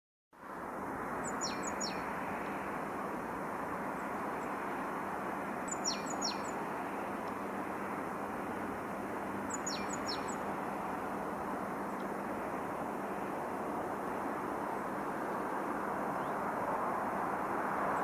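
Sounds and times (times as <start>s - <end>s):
steady background noise: 0.4s - 18.0s
songbird whistled calls: 9.5s - 10.4s.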